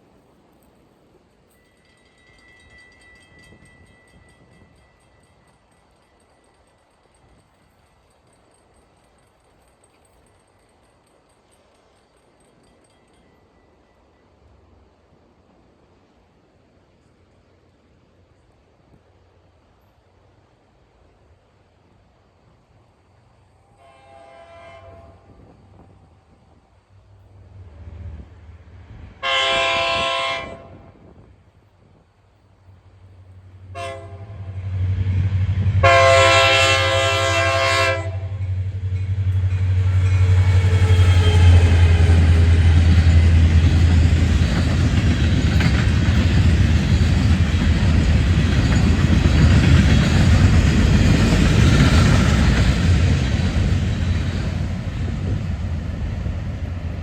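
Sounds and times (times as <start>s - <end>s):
train engine rumble: 0.0s - 57.0s
wheels rushing on rail: 0.0s - 57.0s
train horn blasts: 23.6s - 26.0s, 29.1s - 31.1s, 33.6s - 43.5s.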